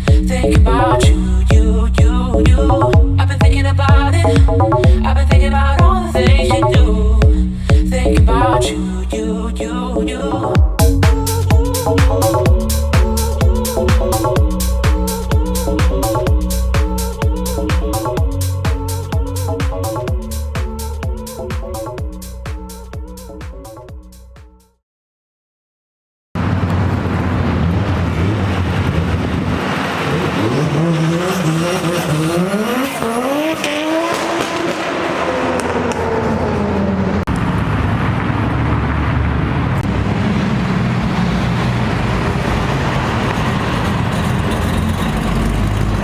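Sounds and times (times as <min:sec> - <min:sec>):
car engine revving: 0:10.8 - 0:22.9, 0:26.4 - 0:46.0.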